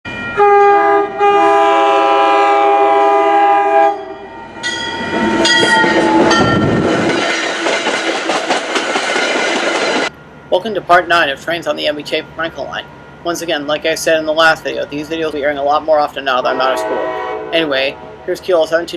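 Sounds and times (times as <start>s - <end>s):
train air horn: 0.4s - 4.3s, 16.4s - 18.4s
train wheels clickety-clack: 5.0s - 10.1s.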